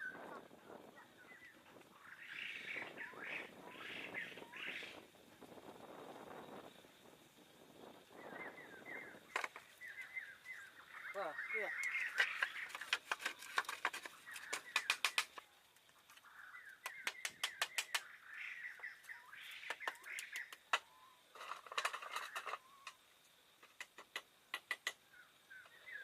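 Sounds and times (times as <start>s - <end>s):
birds chirping: 0.0s - 5.3s, 8.1s - 23.1s, 24.5s - 26.0s
sharp knocks or clicks: 12.2s - 15.4s, 16.8s - 18.1s, 23.6s - 25.0s.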